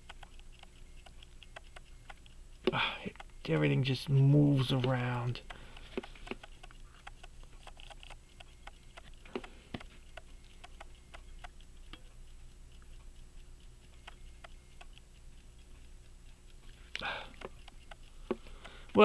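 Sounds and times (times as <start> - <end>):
pocket watch ticking: 0.0 - 19.0
small tools clicking: 4.7 - 12.1.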